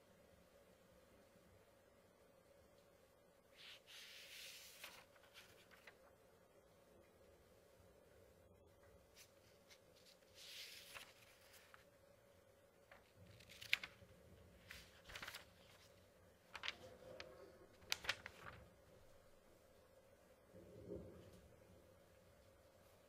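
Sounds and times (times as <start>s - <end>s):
paper pages turning: 3.6s - 6.2s, 9.1s - 11.9s, 12.8s - 18.8s.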